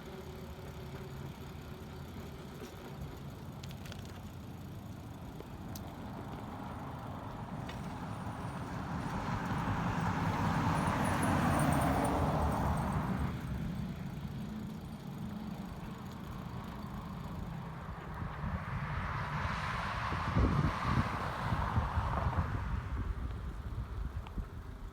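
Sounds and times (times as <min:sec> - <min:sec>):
low road rumble: 0:00.0 - 0:24.9
vehicle passing by: 0:06.4 - 0:23.4.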